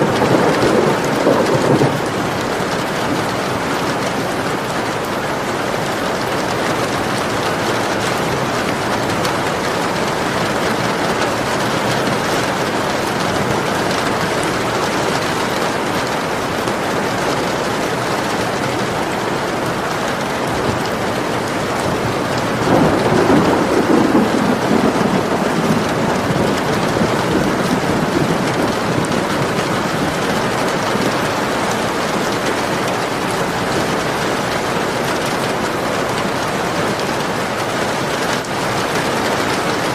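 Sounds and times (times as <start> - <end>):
thunder rumbling: 0.0 - 4.7, 20.2 - 32.6
steady rain falling: 0.0 - 39.9.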